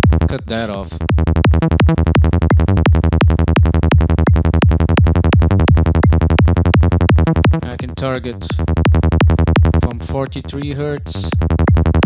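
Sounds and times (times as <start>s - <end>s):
kick drum: 0.0s - 0.2s, 1.0s - 7.6s, 8.5s - 9.8s, 11.4s - 12.0s
rolling synth bass: 0.0s - 12.0s.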